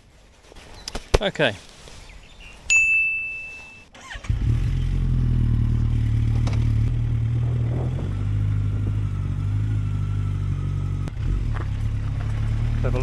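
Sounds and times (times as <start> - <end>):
electronic beep: 2.7 - 3.9
motorcycle engine starting and idling: 3.9 - 13.0.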